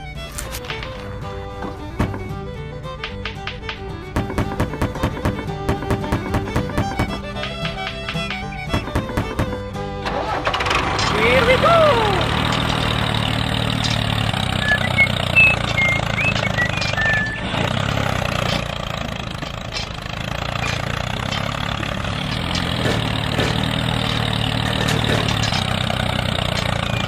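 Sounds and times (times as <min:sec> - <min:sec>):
engine humming: 0:00.0 - 0:27.0
short high chirps: 0:14.6 - 0:17.5.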